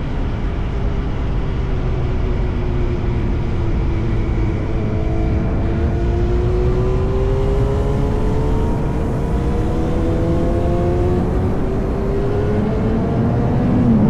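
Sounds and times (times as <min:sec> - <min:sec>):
wind and road noise: 0:00.0 - 0:14.0
motorcycle engine accelerating: 0:03.4 - 0:14.0.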